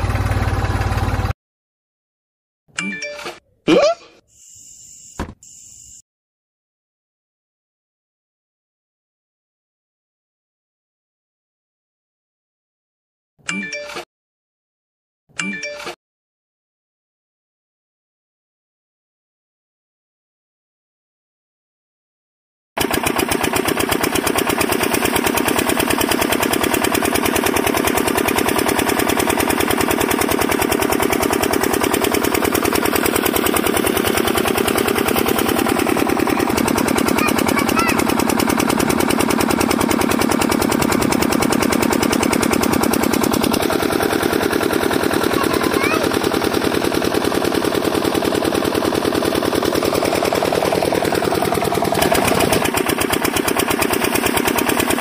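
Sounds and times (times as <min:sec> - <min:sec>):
model diesel engine chugging: 0:00.0 - 0:01.4, 0:22.8 - 0:55.0.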